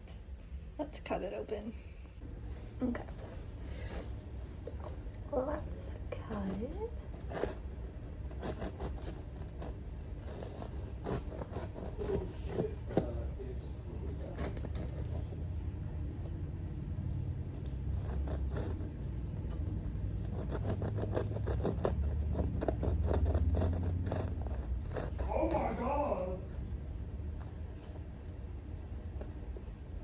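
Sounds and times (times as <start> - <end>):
knife sawing crusty bread: 5.4 - 26.3.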